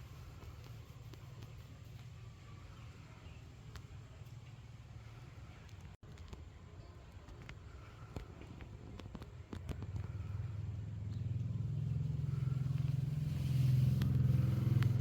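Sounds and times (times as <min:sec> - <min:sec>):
low motor rumble: 0:07.6 - 0:15.0.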